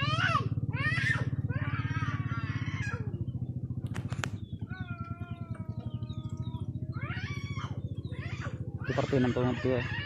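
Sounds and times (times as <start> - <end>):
drawn-out animal call: 0.0 - 10.0
steady low throbbing: 0.0 - 10.0
sharp clicks: 3.8 - 4.4.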